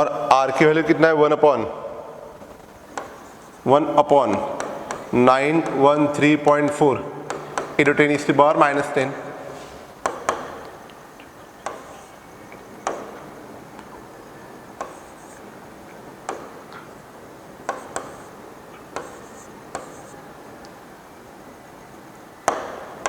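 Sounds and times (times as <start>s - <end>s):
faint steady hiss: 0.0s - 23.0s
sharp light taps: 2.4s - 5.9s, 7.3s - 7.9s, 10.0s - 14.0s, 17.6s - 20.8s.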